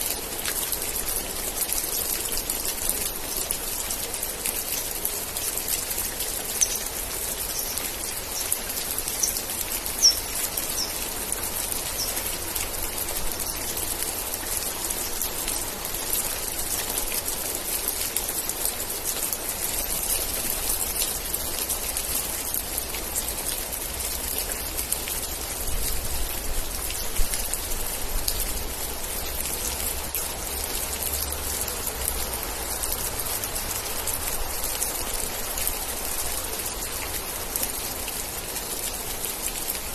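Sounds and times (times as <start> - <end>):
steady rain: 0.0 - 39.9
water drips ticking: 0.1 - 25.6.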